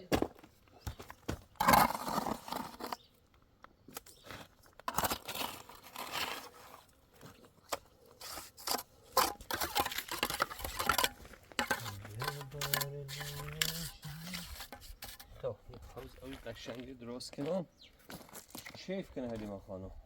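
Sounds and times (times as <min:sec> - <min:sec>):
crunching scraping and rustling: 0:00.0 - 0:19.6.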